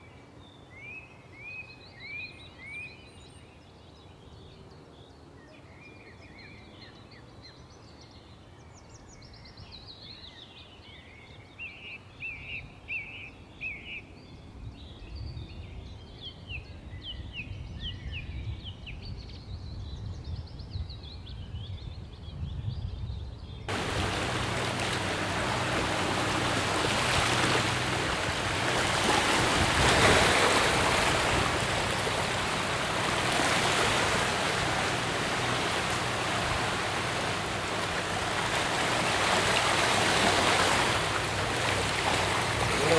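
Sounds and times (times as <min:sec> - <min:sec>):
rush of flowing water: 0:23.7 - 0:42.9
small birds chirping: 0:23.7 - 0:42.9.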